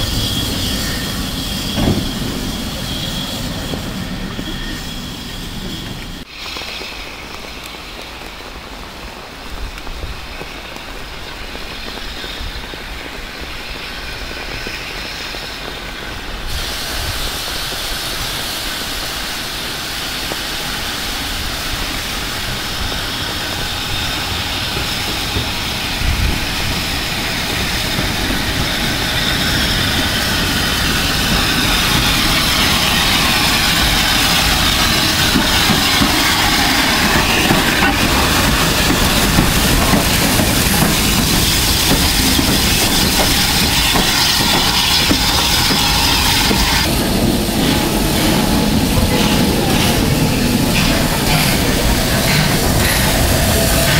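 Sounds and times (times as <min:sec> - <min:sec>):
steam train running: 0:00.0 - 0:53.9
wheels clattering on rails: 0:21.7 - 0:53.9.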